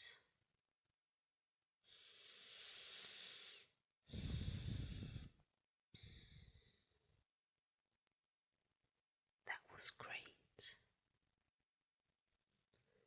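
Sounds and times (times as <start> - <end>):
woman breathing into microphone: 2.3 - 5.4.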